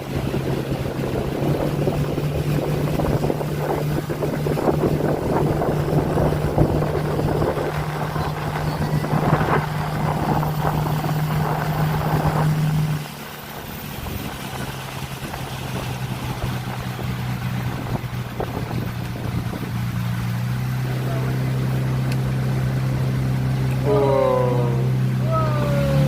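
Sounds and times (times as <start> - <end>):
motorboat engine running: 0.0 - 26.0
water noise: 0.0 - 26.0
wind: 0.0 - 26.0.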